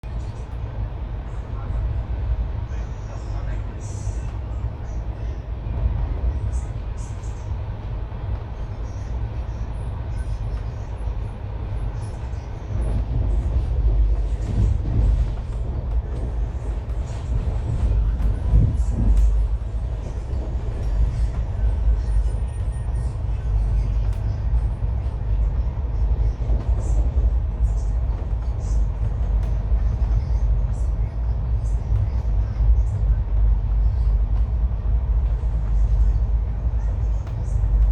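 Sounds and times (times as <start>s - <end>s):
train rumbling on rails: 0.0s - 37.9s.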